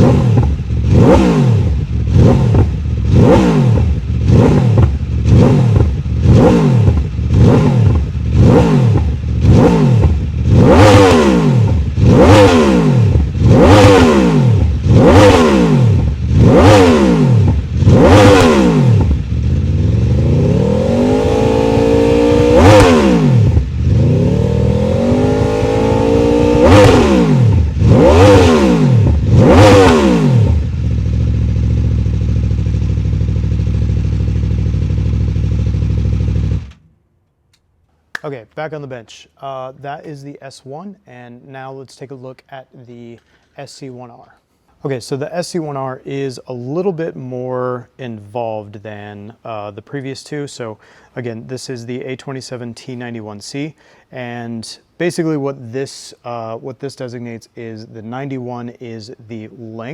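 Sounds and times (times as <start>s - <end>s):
motorcycle engine revving: 0.0s - 36.8s.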